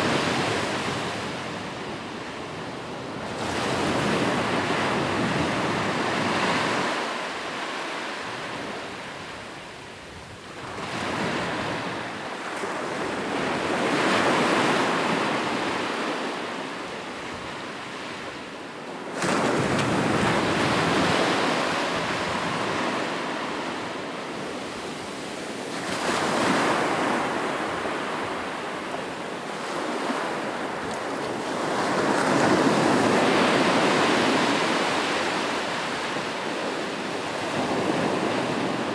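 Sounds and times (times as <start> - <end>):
sea waves breaking: 24.8 - 35.5.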